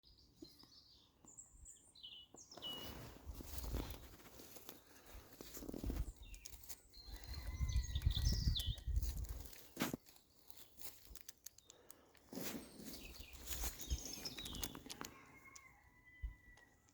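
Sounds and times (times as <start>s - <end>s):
birds chirping: 0.0s - 16.6s
rustling: 2.6s - 15.2s.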